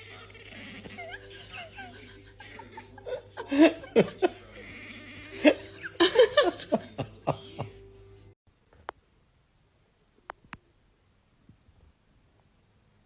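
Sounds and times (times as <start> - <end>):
person laughing in gasping bursts: 0.8 - 4.4.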